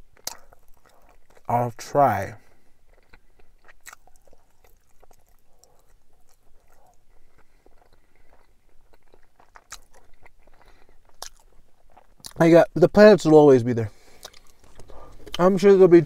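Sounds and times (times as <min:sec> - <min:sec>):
person chewing food: 0:00.0 - 0:01.5, 0:02.4 - 0:12.4, 0:13.9 - 0:15.5.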